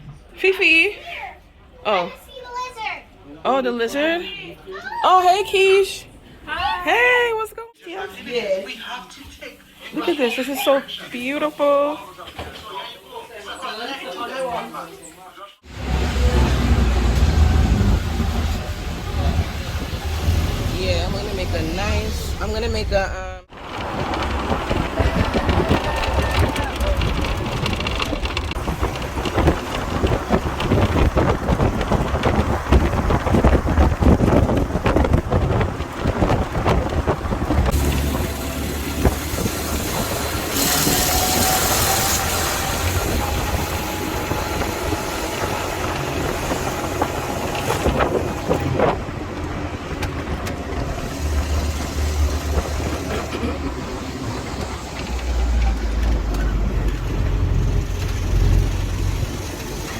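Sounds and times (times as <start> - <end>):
engine and road rumble: 15.6 - 59.9
rattling: 15.8 - 59.9.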